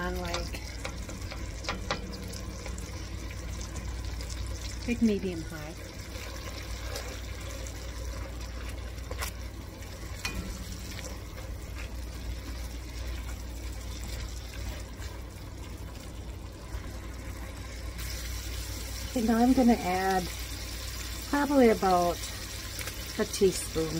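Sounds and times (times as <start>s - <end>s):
vegetables sizzling in butter: 0.0s - 23.9s.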